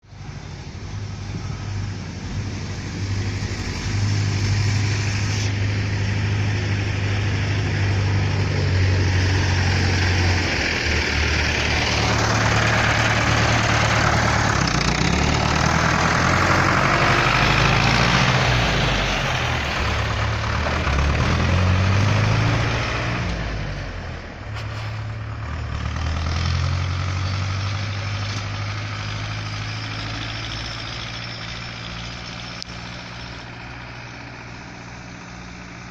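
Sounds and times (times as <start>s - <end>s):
engine revving: 1.1s - 35.9s
tractor diesel engine idling: 5.5s - 21.8s, 27.4s - 35.9s.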